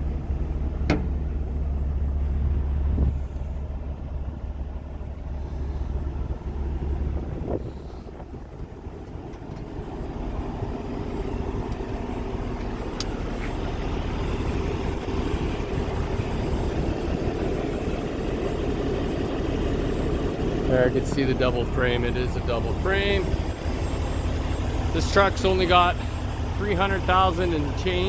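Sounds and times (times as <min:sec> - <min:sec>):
diesel truck engine idling: 0:00.0 - 0:28.0.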